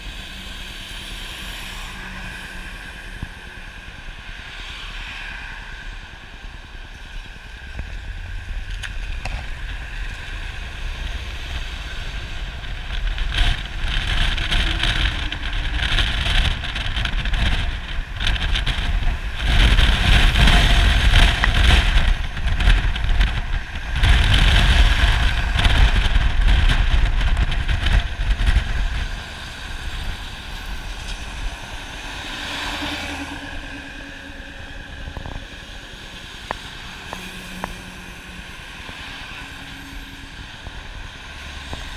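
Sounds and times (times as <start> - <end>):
road vehicle rumble: 0.0 - 41.9.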